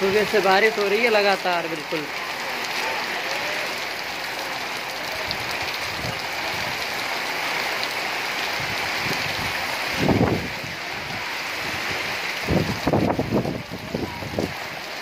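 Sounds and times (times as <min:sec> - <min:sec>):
heavy rain on concrete roof: 0:00.0 - 0:15.0
wind buffeting microphone: 0:08.5 - 0:14.9.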